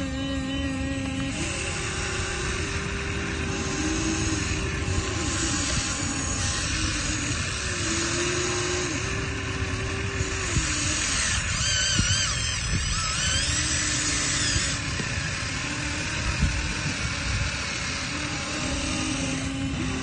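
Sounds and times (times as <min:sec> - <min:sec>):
higher wavering whine: 0:00.0 - 0:20.0
small electric motors whining: 0:00.0 - 0:20.0.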